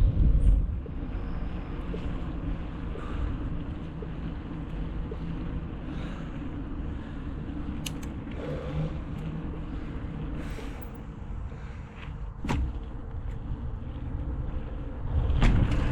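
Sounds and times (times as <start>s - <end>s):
vehicle engine and road rumble: 0.0s - 15.9s
sharp clicks: 7.8s - 8.4s.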